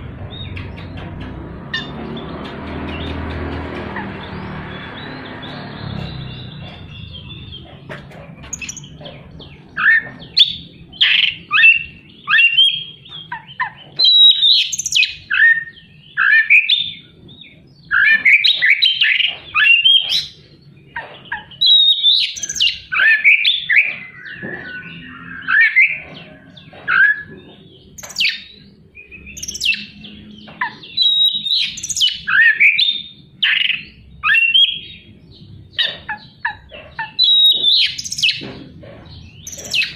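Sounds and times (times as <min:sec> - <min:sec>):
songbird singing varied song: 0:08.5 - 0:39.9.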